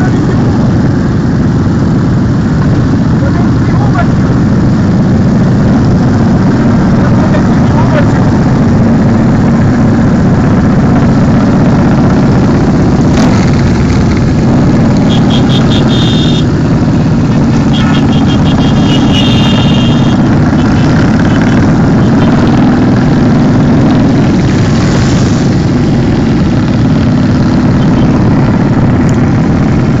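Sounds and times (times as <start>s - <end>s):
motorcycle engines running: 0.0s - 30.0s
fast high ticking: 13.5s - 23.9s.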